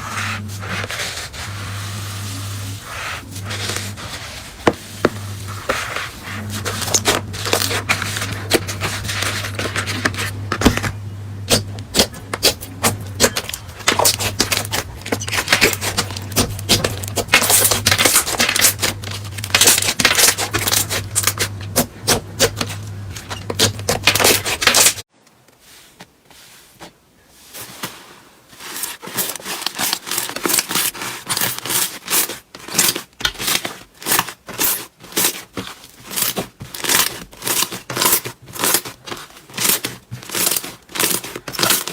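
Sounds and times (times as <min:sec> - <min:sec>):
low steady hum: 0:00.0 - 0:25.1.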